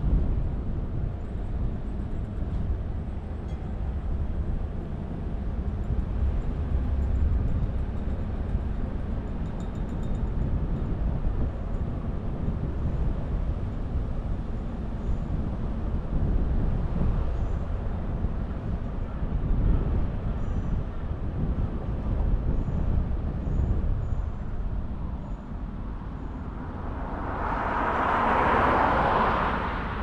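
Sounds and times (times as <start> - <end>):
car road noise: 23.1 - 30.0.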